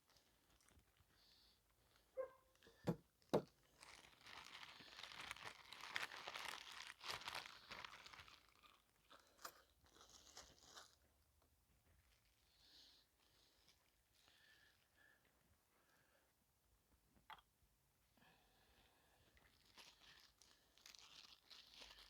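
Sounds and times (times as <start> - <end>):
crinkling rustling handling: 0.0 - 1.2, 3.4 - 11.1, 19.4 - 22.0.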